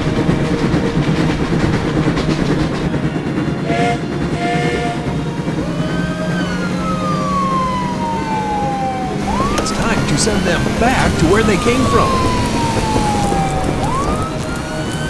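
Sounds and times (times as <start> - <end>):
train rumble: 0.0 - 15.0
train whistle blasts: 3.5 - 15.0.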